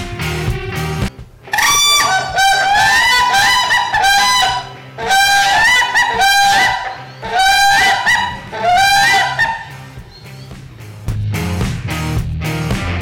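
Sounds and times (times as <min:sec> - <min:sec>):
bird honking calls: 0:01.5 - 0:10.5.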